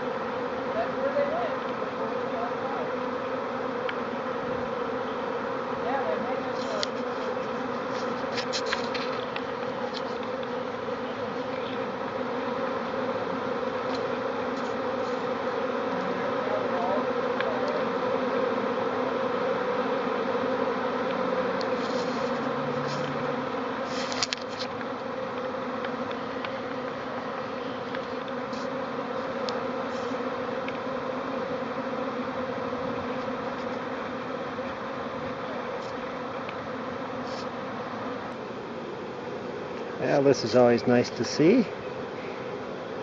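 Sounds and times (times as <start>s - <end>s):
bees buzzing: 0.0s - 43.0s.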